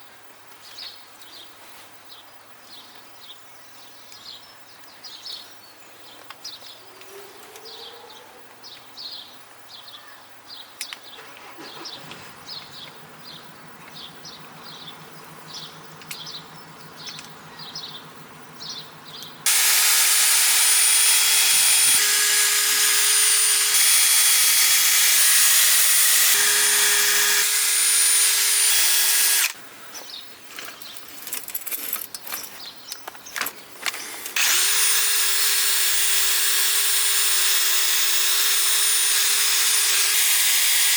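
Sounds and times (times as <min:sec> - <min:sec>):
small birds chirping: 0:00.6 - 0:19.5, 0:32.5 - 0:34.4
power tool hissing and humming: 0:19.4 - 0:29.6, 0:34.4 - 0:40.9.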